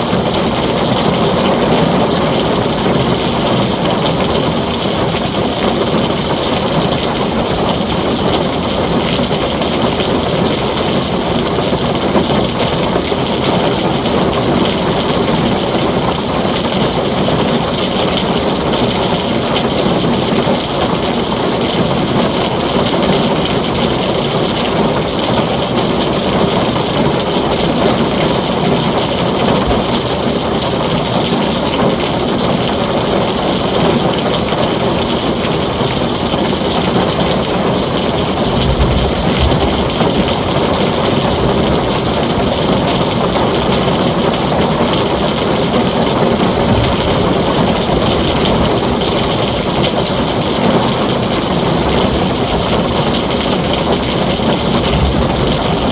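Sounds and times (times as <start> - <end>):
heavy rain on a tin roof: 0.0 - 55.9
low thunder rumble: 21.8 - 32.1, 34.1 - 55.9.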